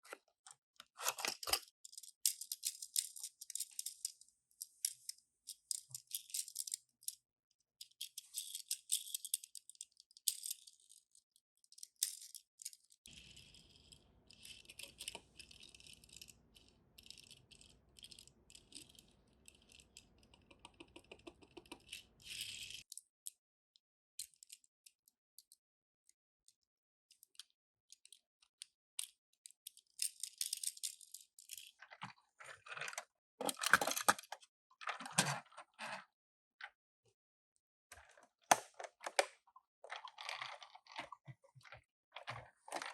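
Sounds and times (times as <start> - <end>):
toy cars rattling and clicking: 1.0 - 7.2, 7.8 - 23.0.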